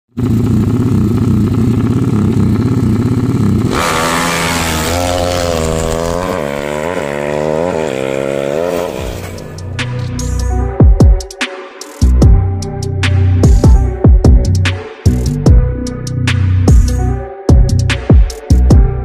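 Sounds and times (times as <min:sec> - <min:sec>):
motorcycle engine revving: 0:00.1 - 0:09.8.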